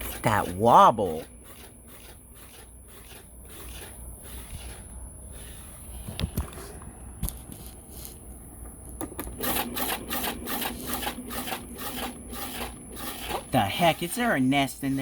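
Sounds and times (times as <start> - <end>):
fan rattling clatter: 0.0 - 2.8, 9.2 - 15.0
air conditioner humming: 0.0 - 15.0.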